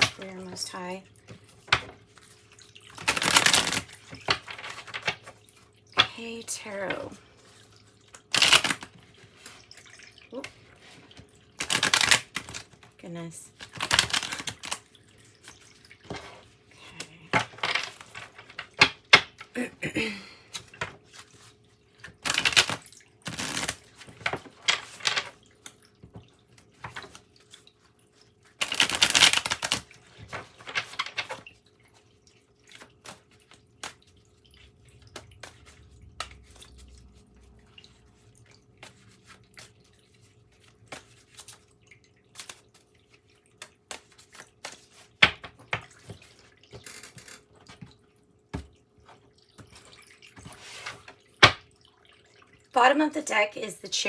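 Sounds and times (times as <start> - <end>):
cards being shuffled: 3.0 - 3.9, 8.3 - 8.9, 11.6 - 12.7, 13.6 - 14.8, 22.2 - 25.2, 28.6 - 31.4, 43.7 - 45.1.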